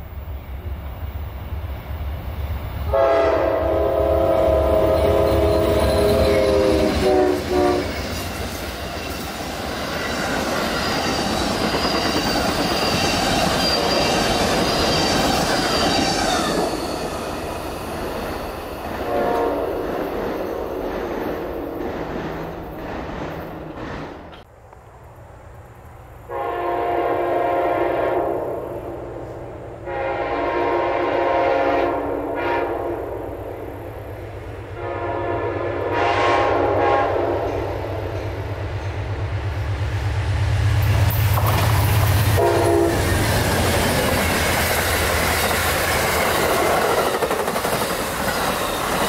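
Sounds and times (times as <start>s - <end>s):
train cars rolling on rails: 0.0s - 26.6s, 36.7s - 49.0s
train chord horn blast: 2.9s - 8.0s, 19.0s - 19.8s, 26.3s - 33.4s, 34.7s - 37.8s, 42.3s - 43.5s.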